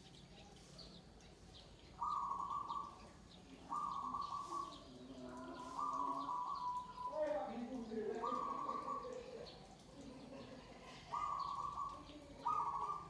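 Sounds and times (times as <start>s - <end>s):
small birds chirping: 0.0s - 13.0s
doves cooing: 8.2s - 9.2s, 11.1s - 13.0s.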